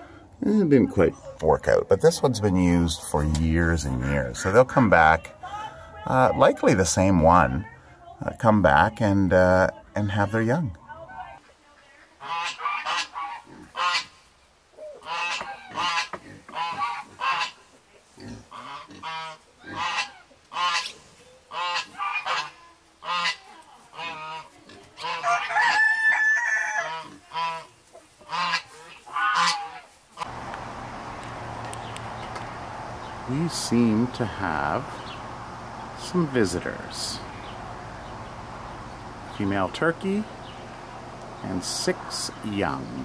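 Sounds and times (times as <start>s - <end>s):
birds calling: 30.2s - 43.0s
drawn-out bird call: 30.2s - 43.0s.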